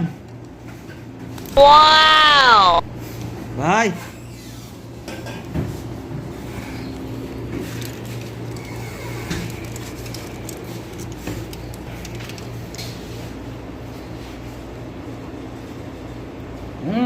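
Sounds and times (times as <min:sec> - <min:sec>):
small clicks and rustles: 0:07.6 - 0:13.1.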